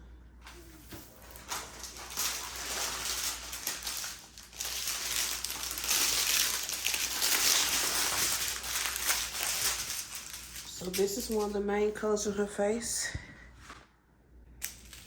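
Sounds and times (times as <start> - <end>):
plastic bags crinkling: 0.5 - 12.0, 14.6 - 15.0.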